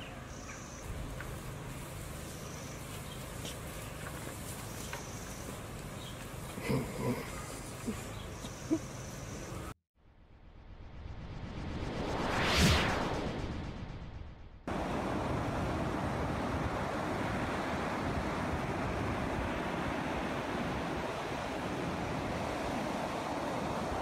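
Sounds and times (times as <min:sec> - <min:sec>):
whoosh: 0:10.0 - 0:14.8
surf breaking on a beach: 0:14.7 - 0:24.0
wind on microphone: 0:14.7 - 0:24.0.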